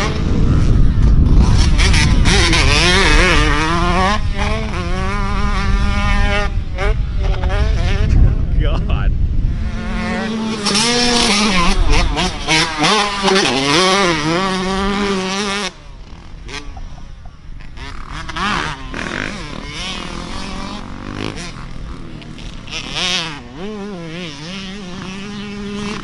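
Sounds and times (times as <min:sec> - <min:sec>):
dirt bike engine running close: 0:00.0 - 0:26.0
distant dirt bike engines revving: 0:00.0 - 0:26.0.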